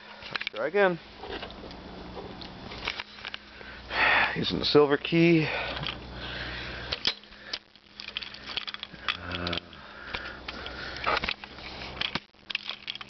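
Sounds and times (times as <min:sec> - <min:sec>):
key rattling and clicking: 0:07.0 - 0:13.0.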